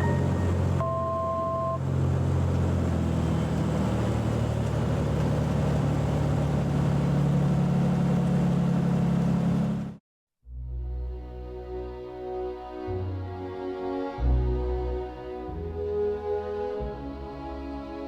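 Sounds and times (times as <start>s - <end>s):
two-note electronic beep: 0.0s - 1.8s
aircraft cabin engine drone: 0.0s - 3.7s.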